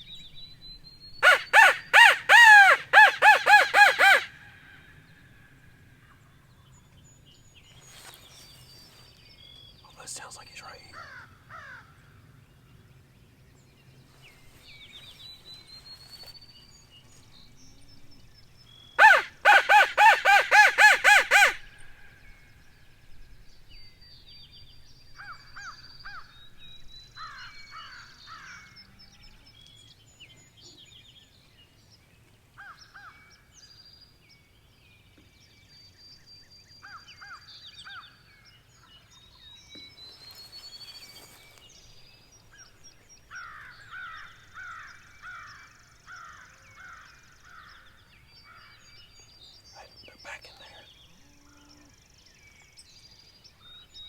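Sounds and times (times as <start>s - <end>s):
crow cawing: 1.2s - 4.4s, 11.0s - 11.9s, 19.0s - 21.6s.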